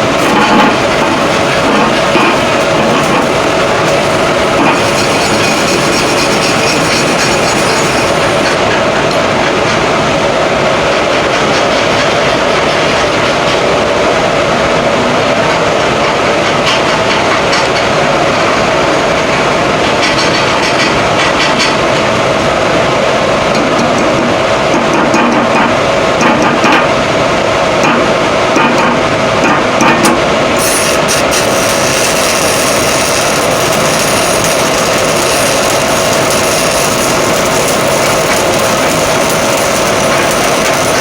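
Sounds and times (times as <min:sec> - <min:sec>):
welding arc crackling: 0:00.0 - 0:08.6, 0:30.1 - 0:41.0
steady hum: 0:00.0 - 0:09.4, 0:21.8 - 0:41.0.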